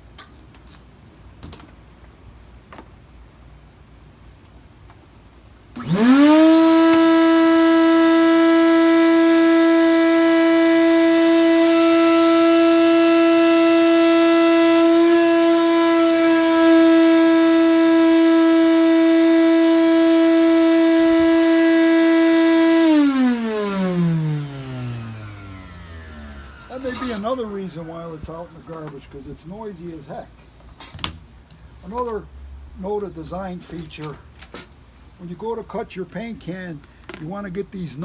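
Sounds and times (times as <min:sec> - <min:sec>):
shop vacuum motor whining: 0:05.7 - 0:30.1.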